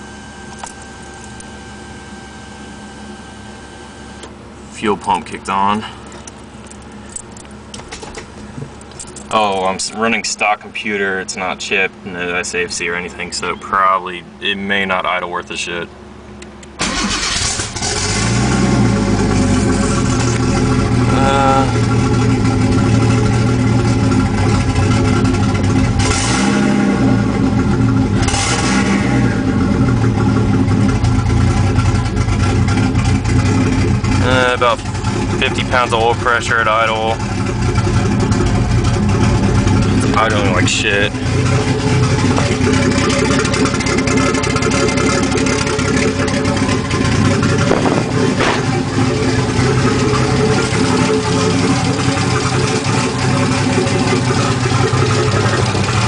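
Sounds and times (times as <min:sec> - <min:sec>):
car engine idling roughly: 0:04.4 - 0:14.4, 0:16.6 - 0:56.0
valvetrain clatter: 0:30.4 - 0:56.0.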